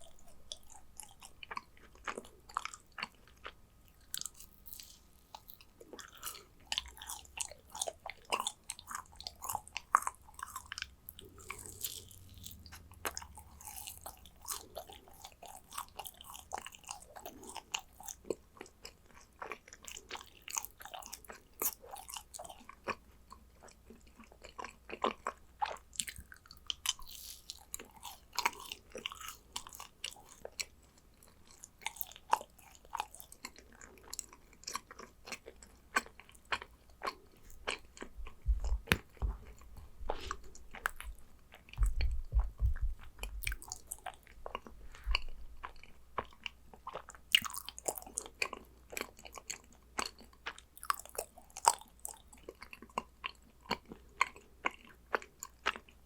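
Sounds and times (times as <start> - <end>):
sticky chewing clicks and smacks: 0.0 - 56.0
low thumps: 38.2 - 40.4, 41.8 - 43.5.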